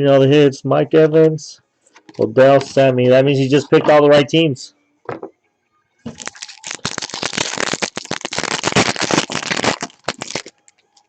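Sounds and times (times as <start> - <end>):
wrapper crinkling: 6.1 - 11.0.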